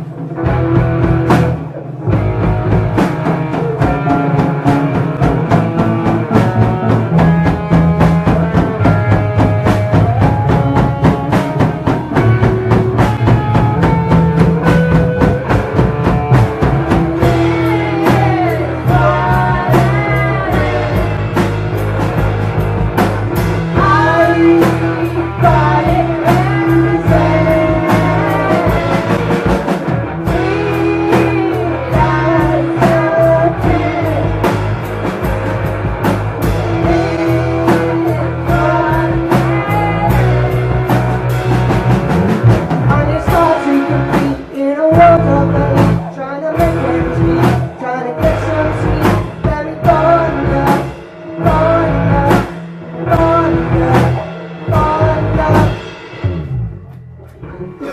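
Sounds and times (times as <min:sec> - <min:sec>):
drum kit beat: 0:00.0 - 0:57.9
live band playing: 0:00.0 - 0:57.9
person singing: 0:16.7 - 0:21.8, 0:23.7 - 0:34.8, 0:36.6 - 0:41.1, 0:42.7 - 0:56.3.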